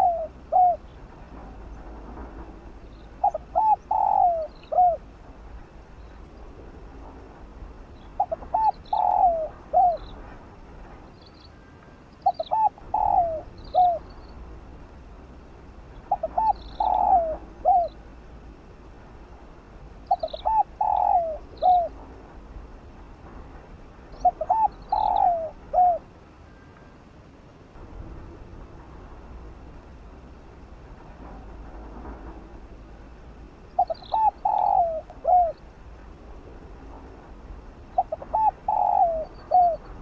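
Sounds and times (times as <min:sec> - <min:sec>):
dove cooing: 0:00.0 - 0:01.0, 0:03.2 - 0:05.1, 0:08.2 - 0:10.2, 0:12.2 - 0:14.1, 0:16.0 - 0:18.0, 0:20.1 - 0:22.0, 0:24.2 - 0:26.1, 0:33.8 - 0:35.6, 0:37.9 - 0:39.9.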